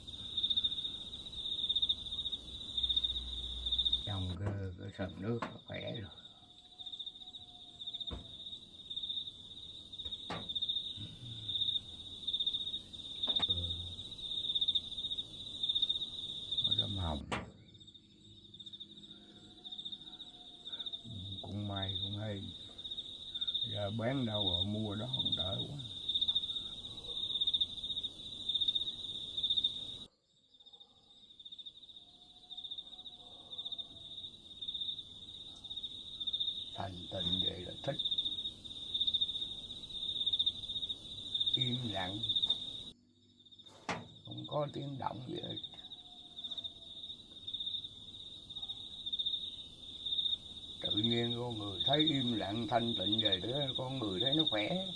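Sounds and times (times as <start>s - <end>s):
crickets chirping: 0.0s - 54.9s
insects trilling: 0.0s - 54.9s
sharp knocks: 8.1s - 8.4s, 10.0s - 10.6s, 43.7s - 44.3s.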